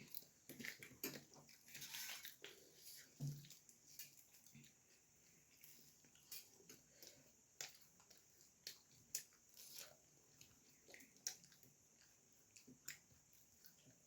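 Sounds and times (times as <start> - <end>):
faint steady hiss: 0.0 - 14.0
wet chewing mouth clicks: 6.2 - 14.0.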